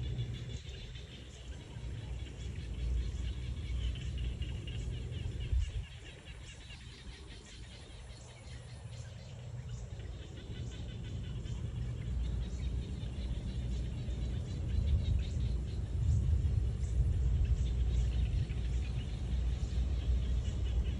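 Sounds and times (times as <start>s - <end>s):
small birds chirping: 0.0s - 20.9s
low rumble: 7.4s - 20.9s.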